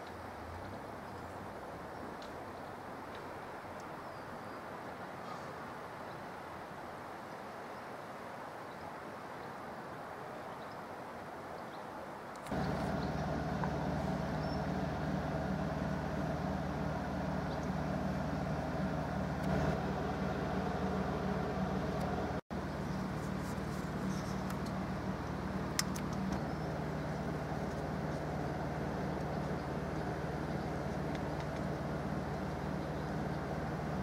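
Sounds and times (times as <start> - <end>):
engine hum: 12.5 - 34.0.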